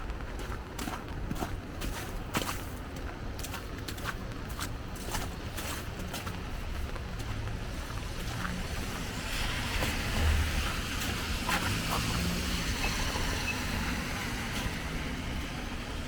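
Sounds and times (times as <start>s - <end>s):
footsteps on wet pavement: 0.0s - 16.0s
tyres hissing on wet street: 5.2s - 16.0s.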